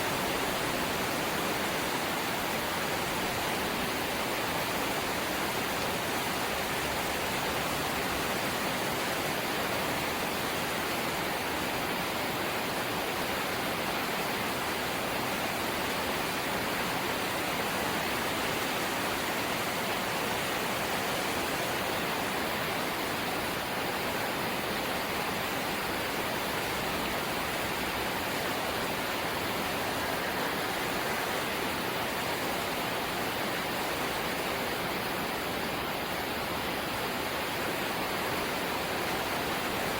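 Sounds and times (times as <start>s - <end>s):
rain on a metal roof: 0.0s - 39.9s.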